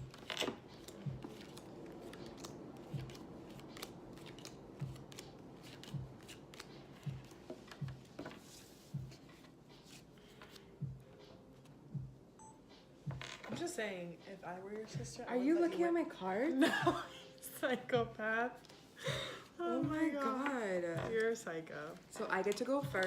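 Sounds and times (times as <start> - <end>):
playing cards shuffled: 0.0 - 10.7.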